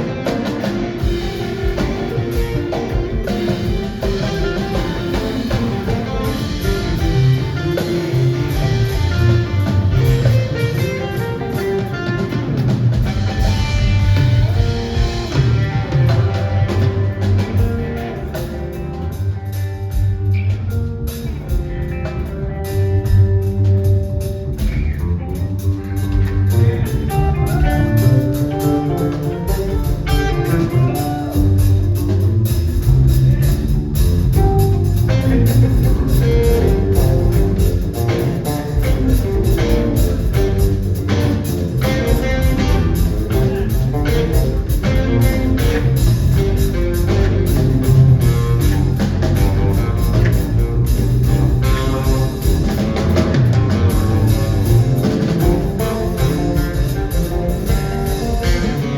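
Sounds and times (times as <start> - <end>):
bass: 0.0 - 58.9
drum kit: 0.0 - 58.9
electric guitar: 0.0 - 58.9
rock band playing: 0.0 - 58.9.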